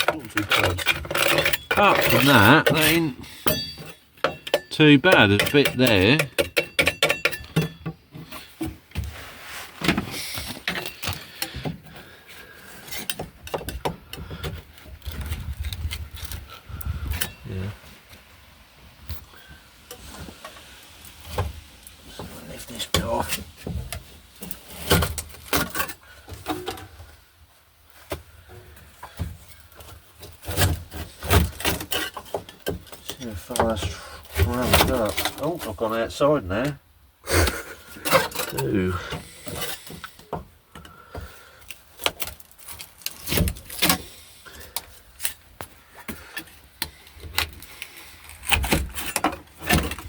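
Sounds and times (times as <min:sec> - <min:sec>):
knocks and clicks on metal: 0:03.5 - 0:08.0.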